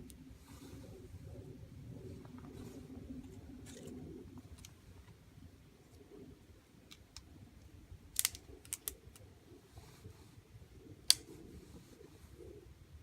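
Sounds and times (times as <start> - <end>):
faint low rumble: 0.0 - 13.0
campfire wood cracking and popping: 8.1 - 9.2.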